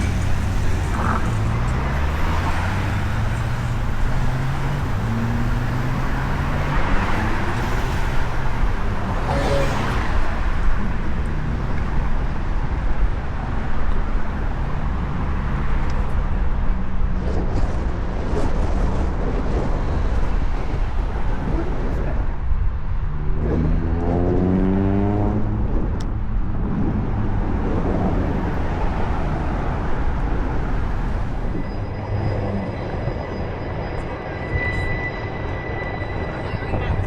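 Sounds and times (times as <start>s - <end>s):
engine rising in pitch: 0.0s - 11.2s, 29.1s - 37.0s
steady low traffic rumble: 0.0s - 37.0s
vehicle engines passing: 0.0s - 37.0s.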